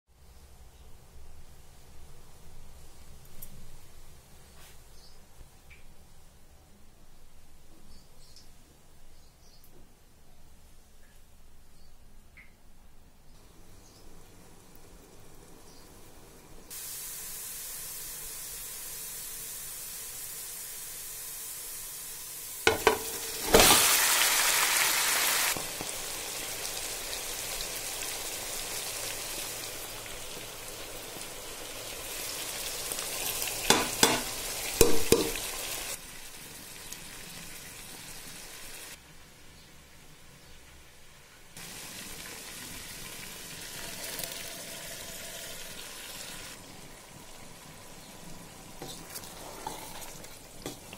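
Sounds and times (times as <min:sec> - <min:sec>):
food sizzling in hot oil: 0:13.4 - 0:39.0, 0:41.6 - 0:50.9.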